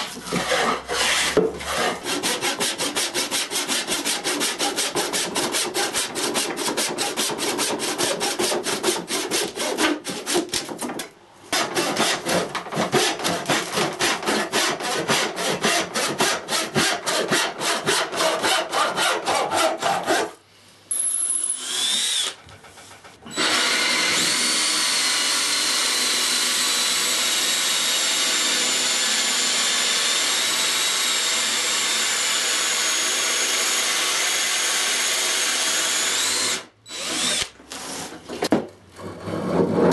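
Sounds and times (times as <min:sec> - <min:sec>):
handsaw cutting wood: 0:00.0 - 0:10.5, 0:11.6 - 0:20.4
power drill whine: 0:20.9 - 0:22.4, 0:23.3 - 0:28.8, 0:35.3 - 0:37.5.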